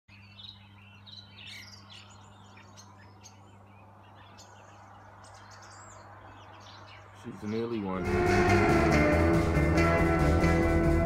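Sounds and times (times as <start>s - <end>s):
small birds chirping: 0.1s - 8.0s.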